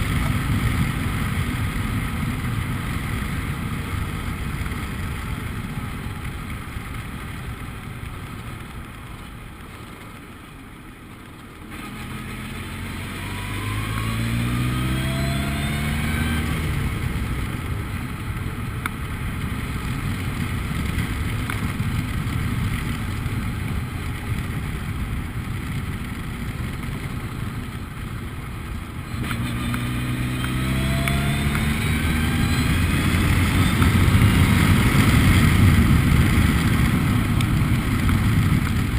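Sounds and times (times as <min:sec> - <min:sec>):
race car engine revving: 0:11.7 - 0:17.0, 0:29.1 - 0:36.4.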